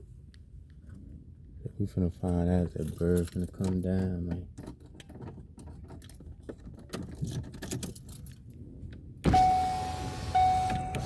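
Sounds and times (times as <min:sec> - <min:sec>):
outside noise: 0:00.0 - 0:11.0
high electronic beep: 0:09.3 - 0:11.0.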